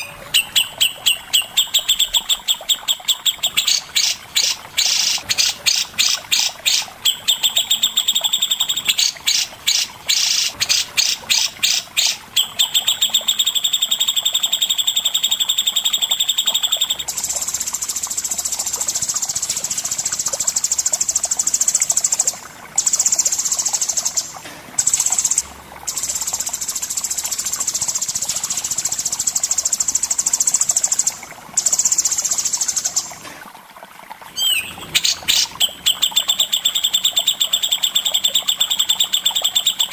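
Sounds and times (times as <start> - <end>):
songbird chirping: 34.4 - 38.0.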